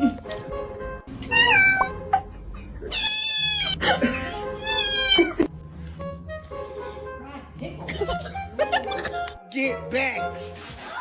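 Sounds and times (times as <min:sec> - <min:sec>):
cat meowing: 0:01.2 - 0:02.0, 0:02.8 - 0:03.8, 0:04.6 - 0:05.4.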